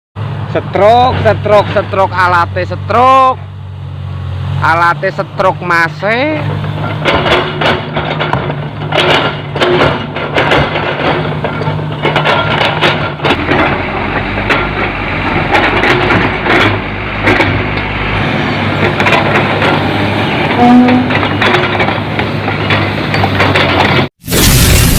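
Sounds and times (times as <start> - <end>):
heavy diesel engine running: 0.2 - 24.9
rocks loaded into steel truck bed: 6.8 - 17.8.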